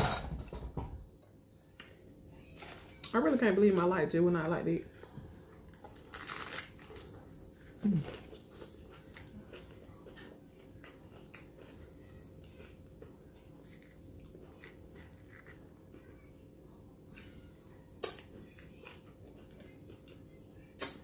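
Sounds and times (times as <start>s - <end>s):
close-up crunchy chewing: 4.9s - 16.2s
crunchy bite into taco shell: 5.7s - 7.1s.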